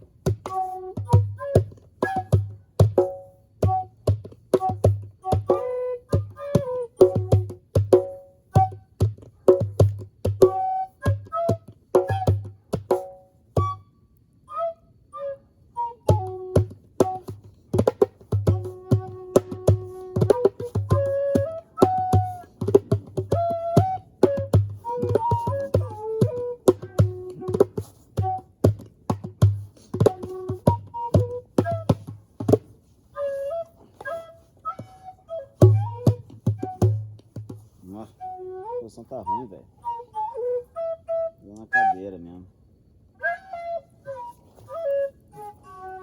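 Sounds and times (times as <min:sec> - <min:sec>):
hand drum beats: 0:00.0 - 0:13.8, 0:16.1 - 0:32.7, 0:35.6 - 0:37.7
flute melody: 0:00.0 - 0:42.4, 0:43.1 - 0:46.0.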